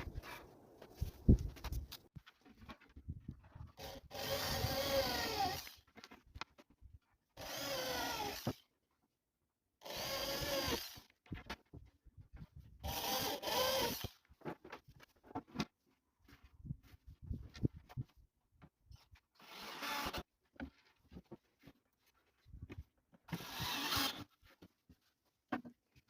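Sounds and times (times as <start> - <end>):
power drill whining: 3.8 - 5.9, 7.4 - 8.6, 9.8 - 11.1, 12.8 - 14.2, 19.4 - 20.3, 23.3 - 24.4.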